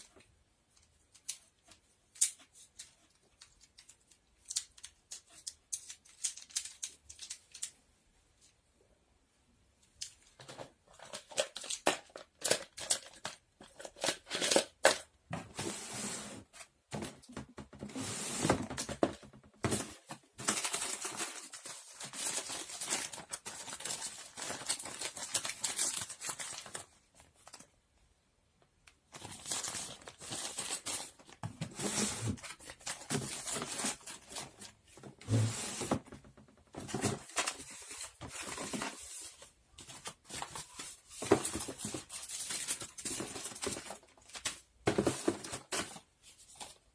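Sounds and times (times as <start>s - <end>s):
crinkly material rustling and tearing: 19.9s - 27.7s.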